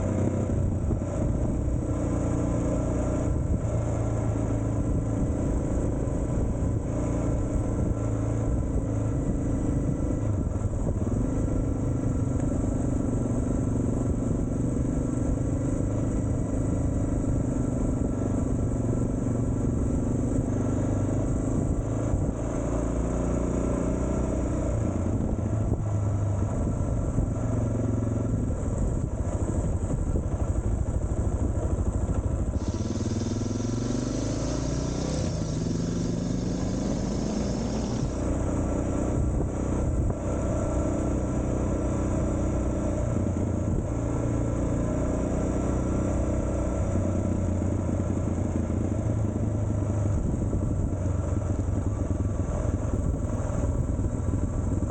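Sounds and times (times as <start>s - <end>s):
motorcycle engine running: 0.0s - 54.9s
hiss: 32.5s - 38.4s.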